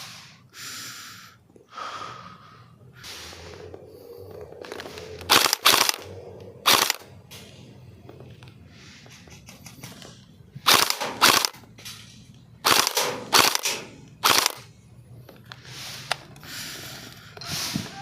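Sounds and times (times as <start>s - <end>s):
airsoft rifle bursts: 5.3s - 7.1s, 10.6s - 11.6s, 12.6s - 14.7s.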